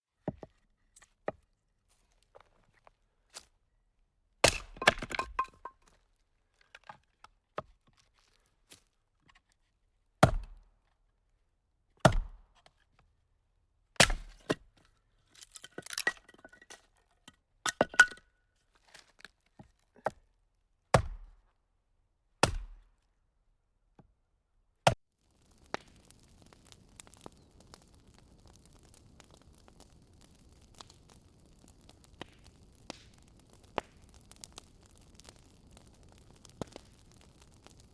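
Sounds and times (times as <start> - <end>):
fire popping: 4.4 - 5.7, 15.6 - 16.1, 25.1 - 37.9
campfire crackling: 4.5 - 5.7, 25.1 - 37.9
faint steady hiss: 25.2 - 37.9.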